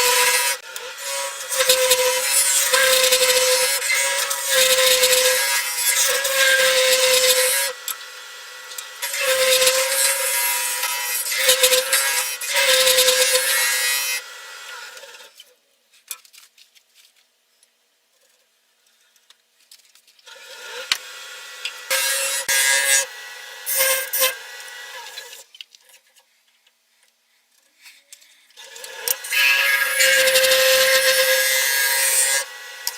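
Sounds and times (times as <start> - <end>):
wood lathe hum: 0.0 - 15.2, 20.3 - 25.4, 28.6 - 32.9.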